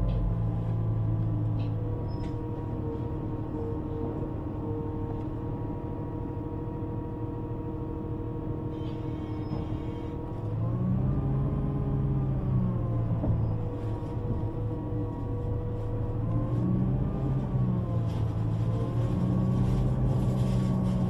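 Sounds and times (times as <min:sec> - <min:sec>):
underground train running: 0:12.5 - 0:21.0.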